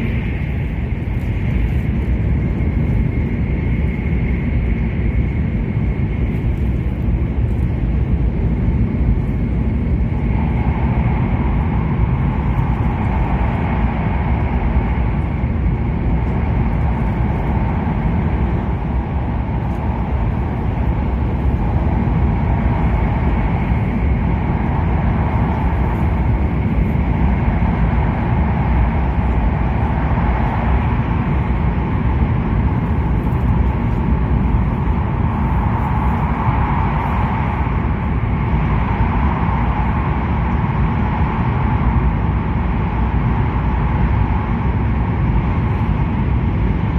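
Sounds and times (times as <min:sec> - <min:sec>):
train cabin rumble and rush: 0:00.0 - 0:46.9.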